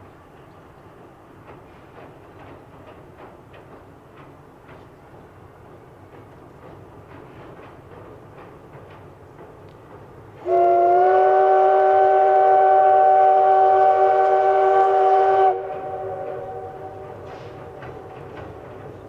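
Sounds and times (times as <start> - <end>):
train running noise: 0.0 - 19.0
steam locomotive whistle: 10.4 - 17.8.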